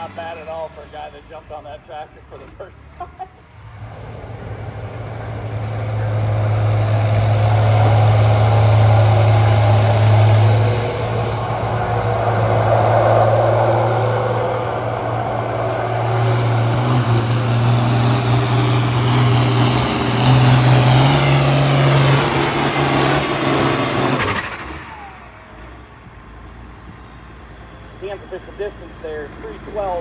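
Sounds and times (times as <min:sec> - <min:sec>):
tractor engine at full throttle: 0:00.0 - 0:30.0.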